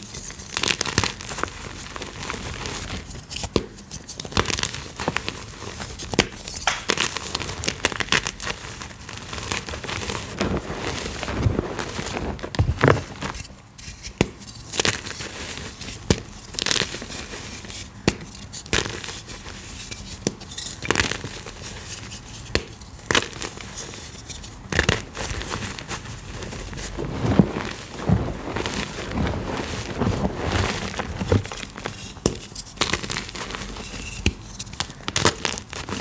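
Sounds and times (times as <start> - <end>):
chalk crushing and crumbling: 24.9 - 36.0.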